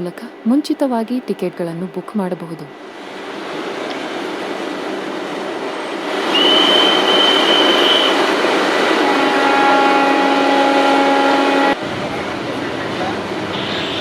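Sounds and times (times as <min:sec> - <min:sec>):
train rumbling: 0:00.0 - 0:14.0
high steady squeal: 0:06.3 - 0:08.3.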